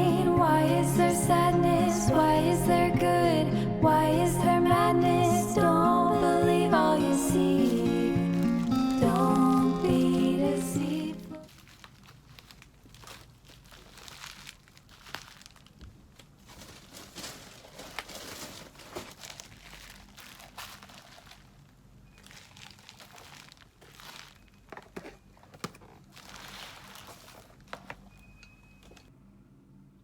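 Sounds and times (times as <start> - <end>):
packaging crinkling: 7.0 - 29.1.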